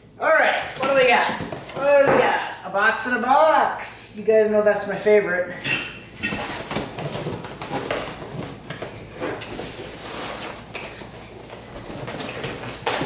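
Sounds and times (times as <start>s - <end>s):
cardboard rustling and scraping: 6.3s - 13.0s.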